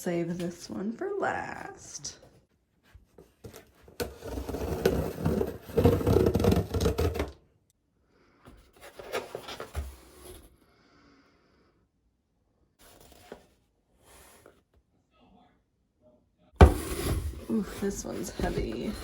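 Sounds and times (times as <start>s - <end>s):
packaging rubbing and scraping: 3.5s - 7.4s, 16.6s - 19.0s.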